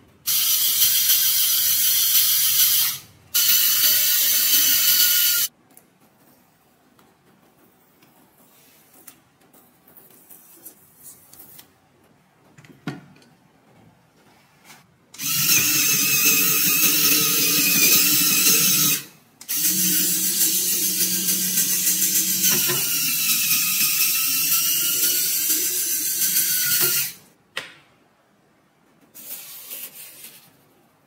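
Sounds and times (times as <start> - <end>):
small electric motor and gears whining: 0.3 - 5.5, 15.2 - 27.2.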